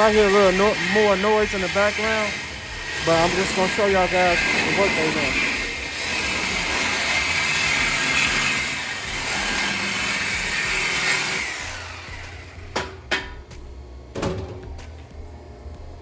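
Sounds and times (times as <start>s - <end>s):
power cutting tool on metal pipe: 0.0s - 12.8s.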